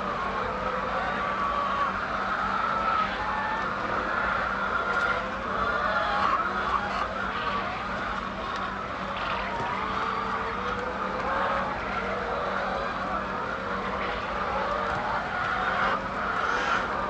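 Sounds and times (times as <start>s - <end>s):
chickens calling: 0.0s - 17.0s
low machine hum: 0.0s - 17.0s.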